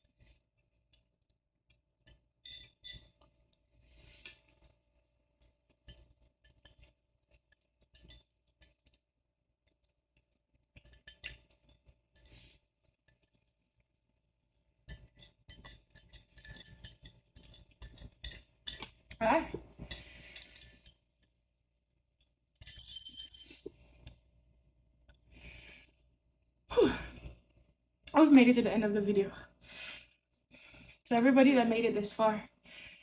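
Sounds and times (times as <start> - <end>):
utensils clinking against a bowl: 14.9 - 19.0, 22.6 - 23.7.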